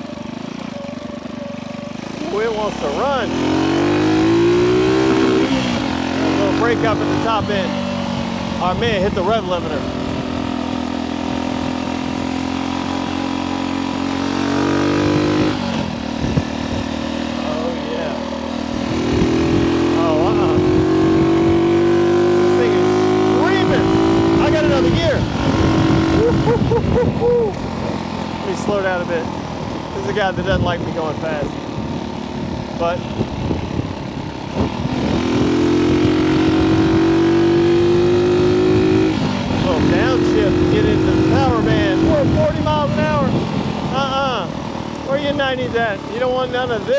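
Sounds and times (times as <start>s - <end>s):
motorcycle engine revving: 0.0s - 46.9s
rough wind noise: 1.9s - 46.8s.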